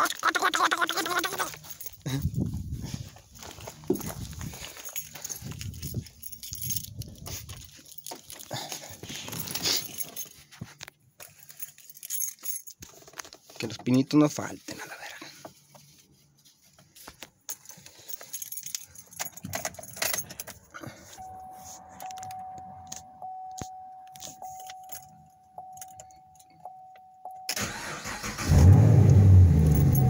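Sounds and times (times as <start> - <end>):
person talking: 0.0 - 2.4, 13.6 - 15.4
keys jangling in ignition: 0.0 - 14.0, 17.4 - 30.0.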